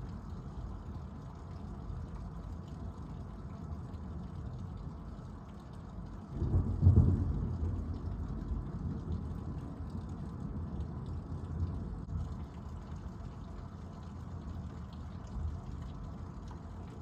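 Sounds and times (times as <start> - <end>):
low background rumble: 0.0 - 17.0
thunderclap rumbling: 6.4 - 9.8.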